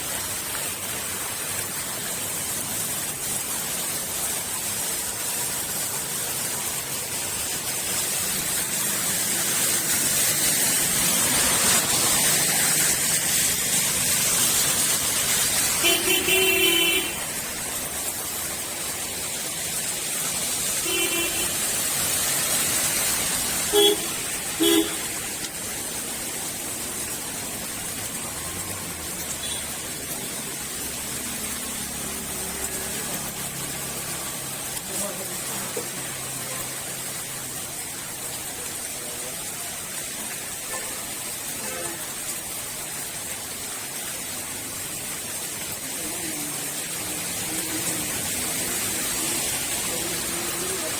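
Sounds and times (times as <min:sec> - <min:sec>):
steady rain hissing: 0:00.0 - 0:50.9
vehicle horns honking: 0:15.8 - 0:17.3, 0:20.8 - 0:21.7, 0:23.7 - 0:25.1, 0:29.4 - 0:29.8.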